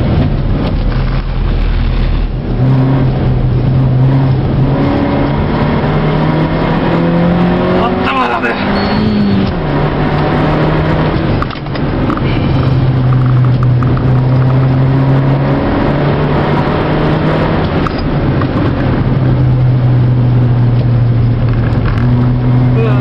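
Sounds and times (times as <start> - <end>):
car engine pulling hard: 0.0 - 23.0
road and tyre noise: 0.0 - 23.0.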